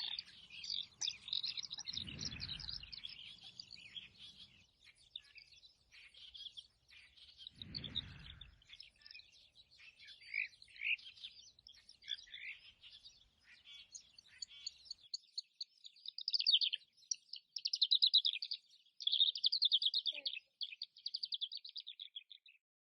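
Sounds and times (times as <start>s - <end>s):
small songbirds chirping and singing: 0.0s - 22.7s
low rumble: 1.8s - 3.3s, 7.6s - 8.7s.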